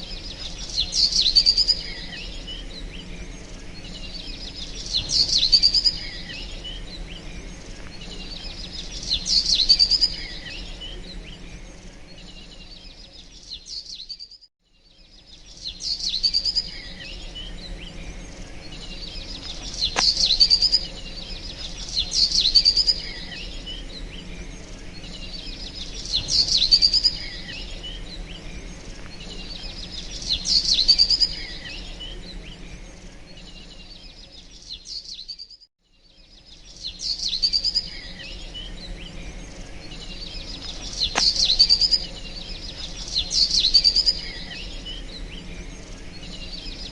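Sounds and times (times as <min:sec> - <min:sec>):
songbird chirping: 0:00.0 - 0:46.9
low background hum: 0:14.8 - 0:34.6, 0:36.2 - 0:46.9.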